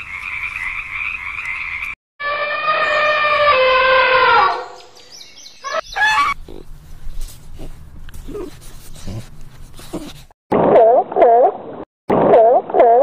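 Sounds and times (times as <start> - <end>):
frogs calling: 0.0 - 1.9, 5.3 - 6.6
elephant trumpeting: 2.2 - 4.8, 5.6 - 6.6
short high calls: 5.6 - 6.4.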